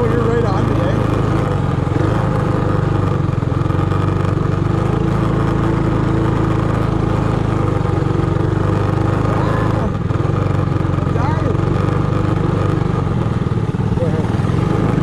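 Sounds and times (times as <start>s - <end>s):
small minibike engine running: 0.0s - 15.0s.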